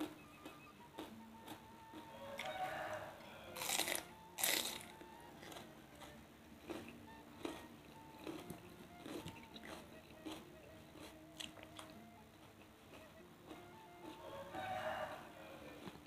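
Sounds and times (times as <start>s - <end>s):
chewing with wet mouth clicks: 0.1s - 2.6s, 3.6s - 14.2s
crunchy bites into raw vegetable: 3.6s - 10.4s.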